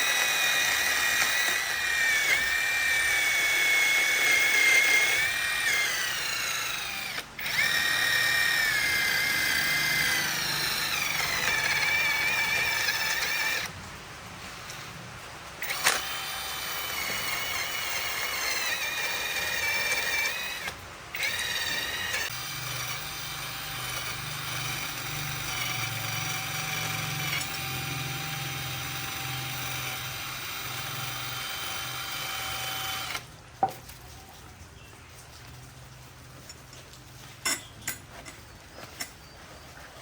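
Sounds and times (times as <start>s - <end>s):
electric power tool whining: 0.0s - 13.7s, 15.6s - 33.3s.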